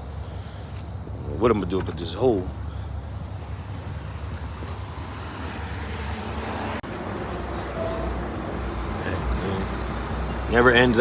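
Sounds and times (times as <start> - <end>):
car road noise: 0.0 - 11.0
tyre hiss: 6.9 - 11.0.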